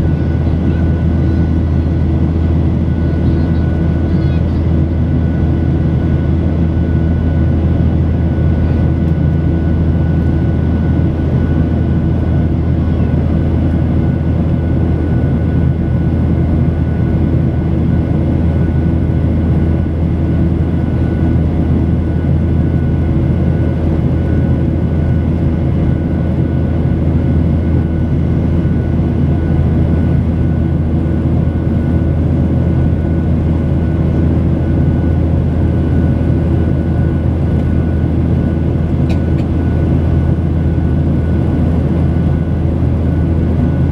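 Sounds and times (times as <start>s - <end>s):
jet engine drone in cabin: 0.0s - 43.9s.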